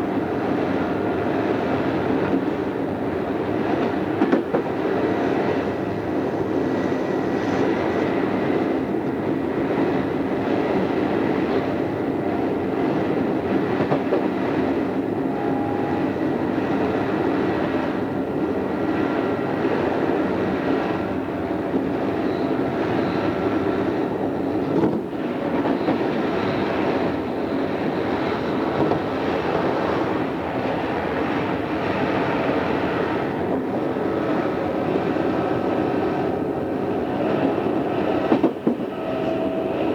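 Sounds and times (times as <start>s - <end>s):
electric train rumbling: 0.0s - 39.9s.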